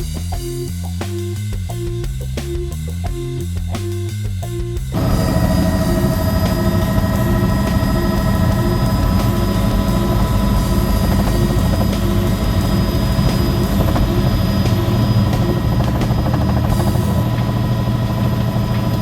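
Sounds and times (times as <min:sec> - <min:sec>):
helicopter rotor hum: 0:03.1 - 0:19.0
turbine engine whine: 0:04.8 - 0:19.0.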